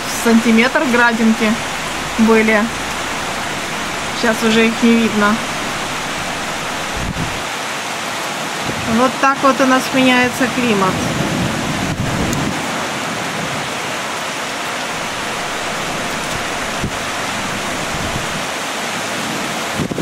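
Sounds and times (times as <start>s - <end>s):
heavy rain hissing: 0.0s - 8.1s, 14.8s - 18.8s.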